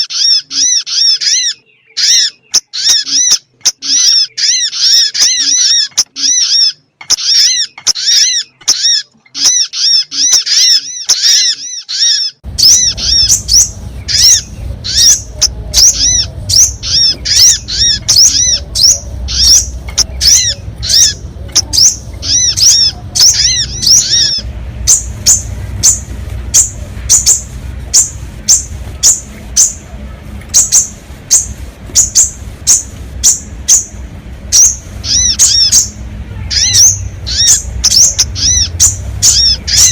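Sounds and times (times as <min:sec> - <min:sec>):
bird chirping calls: 0:00.0 - 0:39.9
low steady hum: 0:12.4 - 0:39.9.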